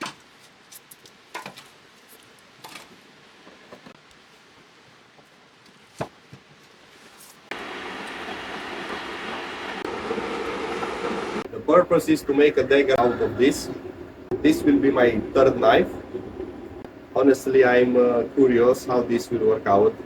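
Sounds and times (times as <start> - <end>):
steady rushing noise: 7.5 - 20.0.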